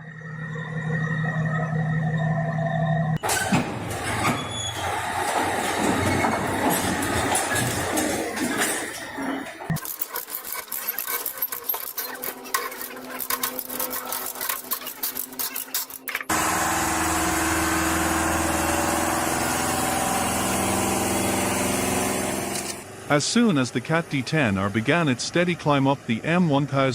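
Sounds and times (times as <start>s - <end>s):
diesel engine droning: 0.0s - 26.9s
metallic clicking and rattling: 3.2s - 16.3s.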